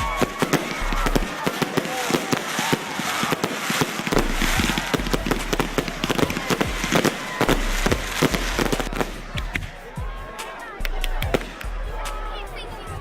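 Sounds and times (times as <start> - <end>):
fireworks bangs and crackles: 0.0 - 10.5, 11.1 - 12.2.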